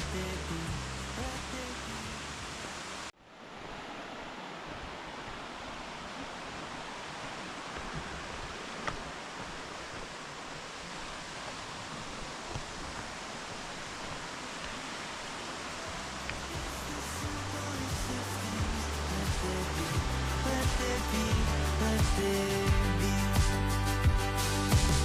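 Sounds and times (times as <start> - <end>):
music: 0.0 - 2.5, 15.9 - 25.0
waterfall rushing: 0.0 - 25.0.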